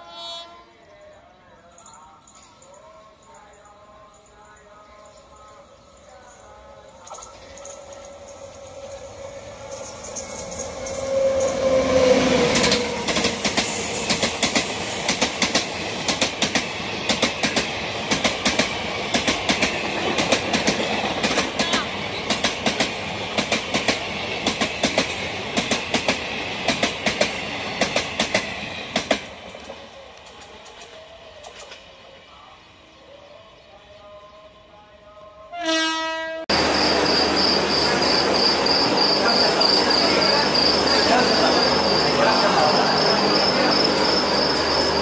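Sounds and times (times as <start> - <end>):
train rumble: 5.7 - 32.9, 36.5 - 45.0
locomotive passing with falling tone: 7.0 - 15.3, 36.5 - 45.0.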